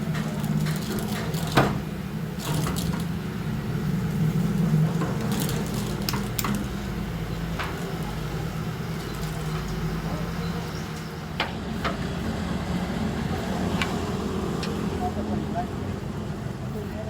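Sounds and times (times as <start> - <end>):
low machine hum: 0.0 - 17.0
metal parts knocking and clinking: 4.9 - 9.8.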